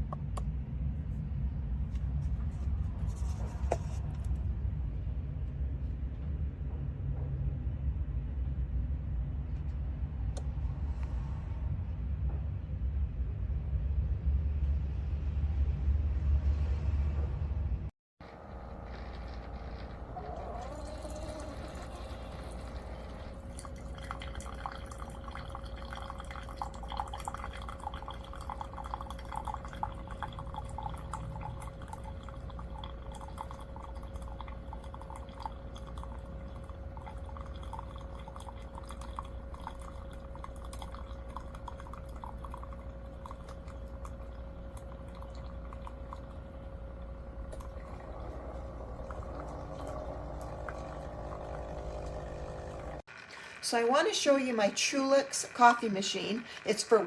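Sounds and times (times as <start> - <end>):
coffee dripping into cup: 18.2 - 57.0
coffee maker hum: 18.2 - 57.0.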